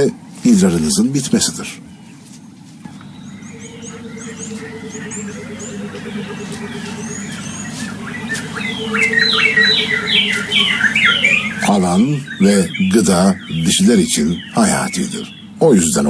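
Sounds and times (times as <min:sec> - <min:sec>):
low hum: 0:00.0 - 0:16.0
small birds chirping: 0:00.0 - 0:16.0
bird downward-falling calls: 0:02.9 - 0:15.6.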